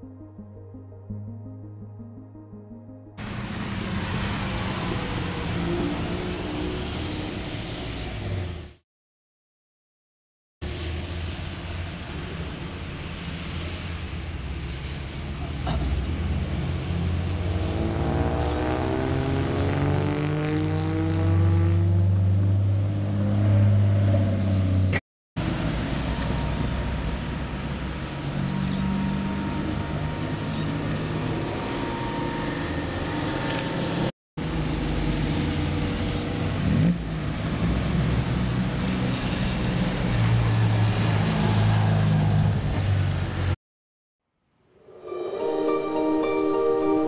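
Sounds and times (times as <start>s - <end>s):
sports car engines driving past: 10.7s - 43.6s.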